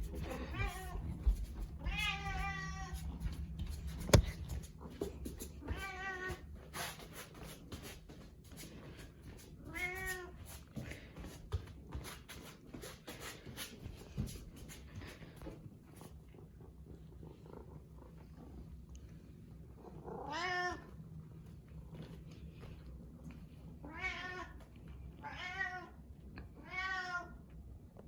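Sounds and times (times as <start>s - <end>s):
cat meowing: 1.8s - 3.0s, 20.2s - 20.8s, 26.6s - 27.4s.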